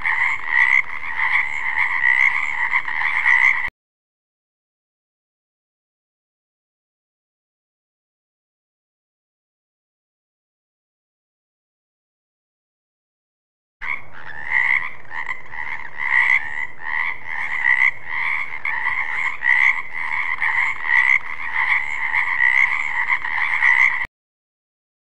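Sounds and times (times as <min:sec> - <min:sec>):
frogs croaking: 0:00.0 - 0:03.7, 0:13.8 - 0:24.1.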